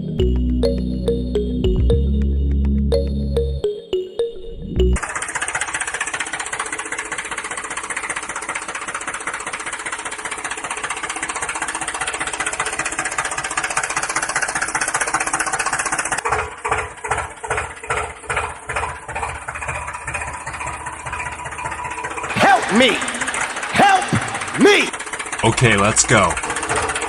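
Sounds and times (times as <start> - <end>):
toy tractor motor buzzing: 5.0 - 18.8, 20.8 - 27.0.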